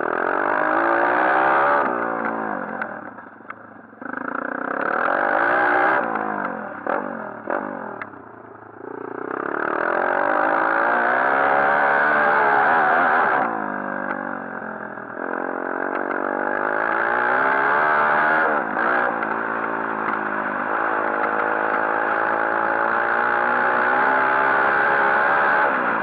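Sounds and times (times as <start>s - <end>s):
motorbike engine revving: 0.0s - 26.0s.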